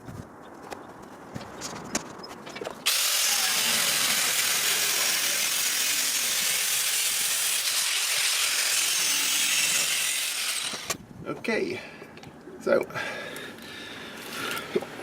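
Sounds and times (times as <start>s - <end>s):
power tool cutting steel: 2.8s - 11.0s.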